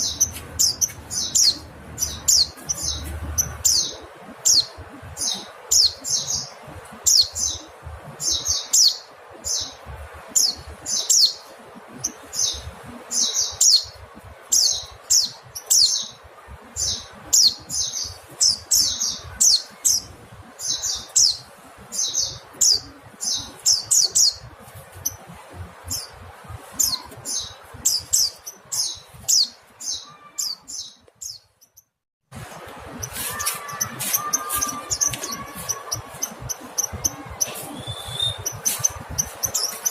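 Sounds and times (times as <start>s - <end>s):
bird chirping rapidly: 0.0s - 9.8s, 16.8s - 25.2s, 25.8s - 39.9s
steady hiss: 32.3s - 39.9s.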